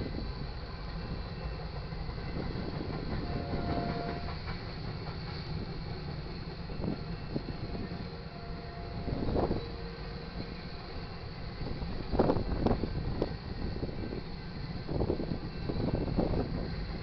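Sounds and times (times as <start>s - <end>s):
train rolling by: 0.0s - 17.0s
high wheel squeal: 1.0s - 4.5s.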